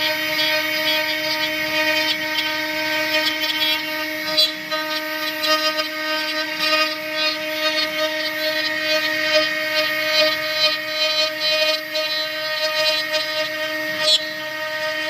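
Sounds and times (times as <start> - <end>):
router spindle whine: 0.0 - 15.0.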